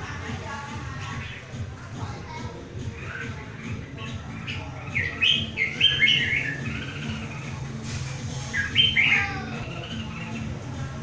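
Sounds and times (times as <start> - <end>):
bird whistling song: 3.0 - 10.8.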